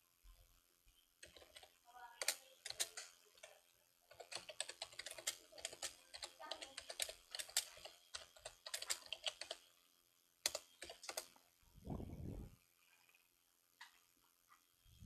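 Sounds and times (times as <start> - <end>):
clicks tapping on keys: 1.2 - 3.5, 4.1 - 9.6, 10.4 - 11.3.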